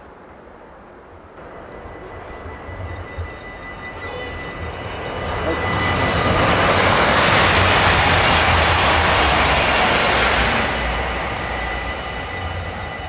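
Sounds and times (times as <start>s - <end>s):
high-speed train passing: 0.0s - 13.0s
thin steady whistle: 1.4s - 6.4s, 10.7s - 13.0s.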